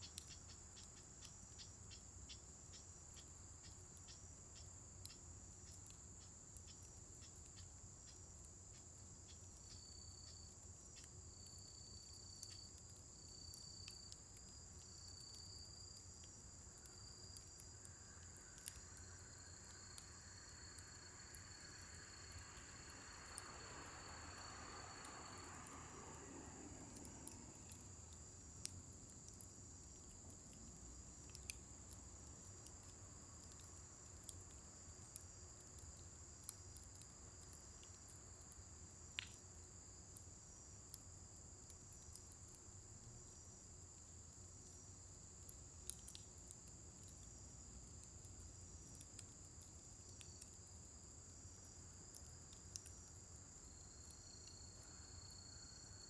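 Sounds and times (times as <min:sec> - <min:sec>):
fire crackling and popping: 0:00.0 - 0:55.4
high-pitched insect trill: 0:00.2 - 0:28.5, 0:49.9 - 0:56.0.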